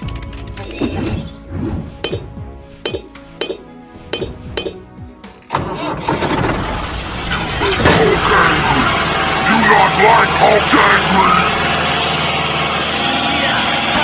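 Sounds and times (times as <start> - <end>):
background music with clicking beat: 0.0 - 5.5
loud dense noise: 5.6 - 14.0.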